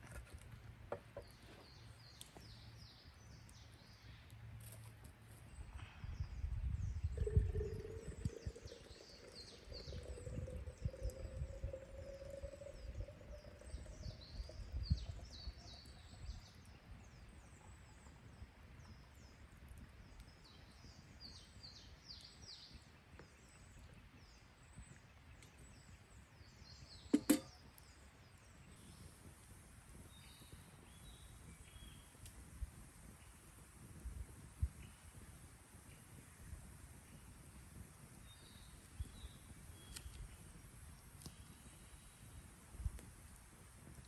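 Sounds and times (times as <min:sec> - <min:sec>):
small birds twittering: 0:07.0 - 0:19.4, 0:29.9 - 0:32.3.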